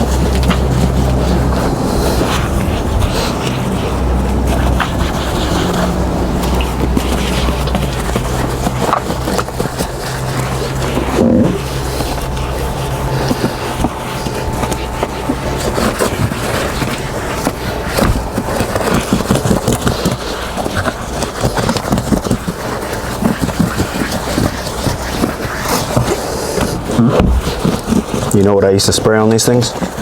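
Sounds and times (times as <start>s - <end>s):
low drone: 0.0s - 21.5s
scrubbing cushion: 0.0s - 30.0s.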